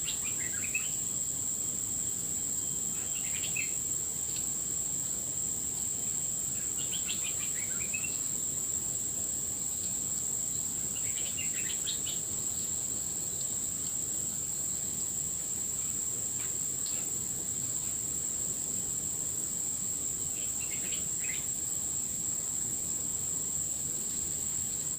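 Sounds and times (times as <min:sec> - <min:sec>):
bird chirping: 0:00.0 - 0:01.0, 0:02.9 - 0:03.8, 0:06.6 - 0:08.2, 0:11.0 - 0:12.2, 0:20.4 - 0:21.5
crickets droning: 0:00.0 - 0:24.9.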